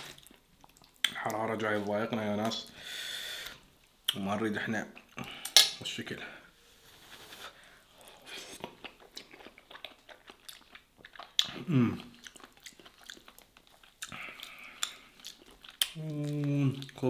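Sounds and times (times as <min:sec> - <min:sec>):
close chewing with mouth clicks: 0:00.0 - 0:01.3, 0:08.2 - 0:17.0.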